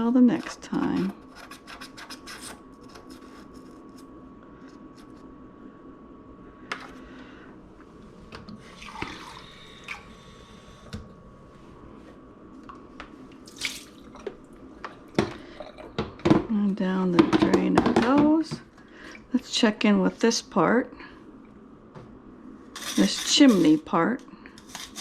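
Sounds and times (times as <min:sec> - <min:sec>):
faint steady hum: 0:00.0 - 0:25.0
water trickling into sink: 0:08.8 - 0:10.0
water splash: 0:13.5 - 0:14.2.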